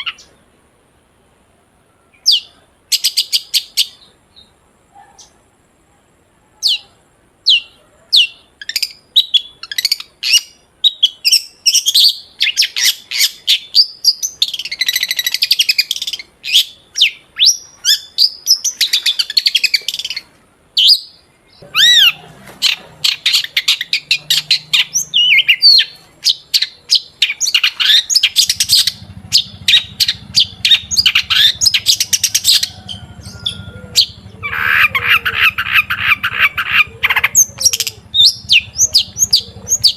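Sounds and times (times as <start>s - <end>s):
bird singing and chattering: 7.5s - 20.2s, 20.8s - 39.9s.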